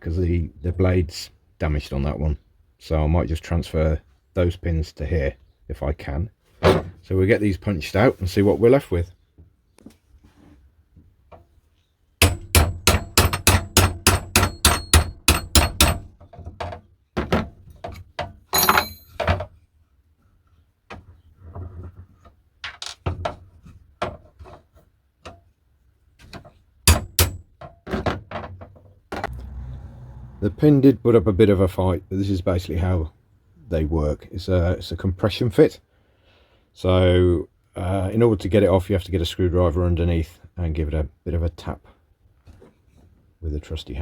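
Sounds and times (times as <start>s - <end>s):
hammer tapping metal punch: 12.2s - 16.2s, 18.5s - 19.4s, 26.9s - 27.8s.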